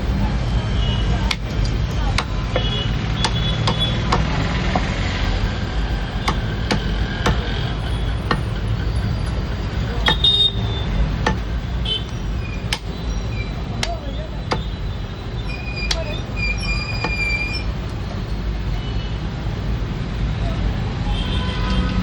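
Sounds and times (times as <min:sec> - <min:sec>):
traffic rumble: 0:00.0 - 0:22.0
cleaver chopping meat: 0:01.2 - 0:04.9, 0:06.2 - 0:07.6, 0:08.3 - 0:08.6, 0:11.2 - 0:11.5, 0:13.8 - 0:14.7.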